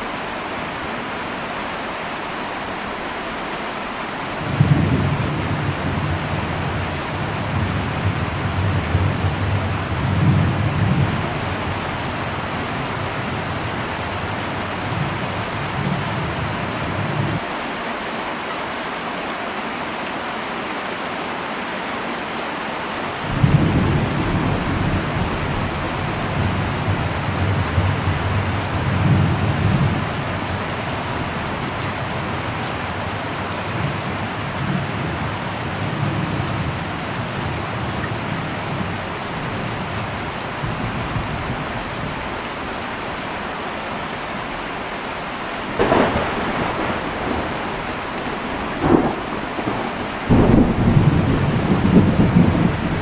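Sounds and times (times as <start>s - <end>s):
rain on a metal roof: 0.0s - 53.0s
thunder rumbling: 4.4s - 17.4s, 23.2s - 41.8s, 45.7s - 53.0s.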